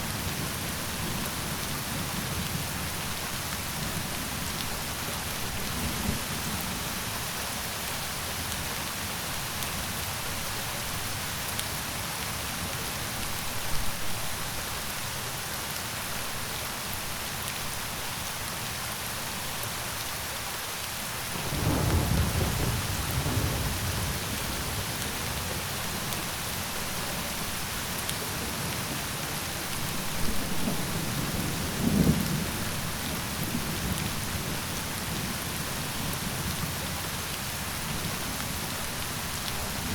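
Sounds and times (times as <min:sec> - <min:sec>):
heavy rain: 0:00.0 - 0:39.9
low rolling thunder: 0:21.4 - 0:25.7.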